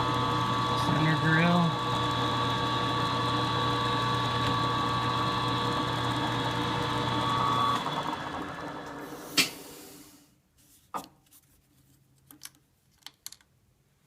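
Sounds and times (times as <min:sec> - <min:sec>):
milling machine motor whining: 0:00.0 - 0:09.0.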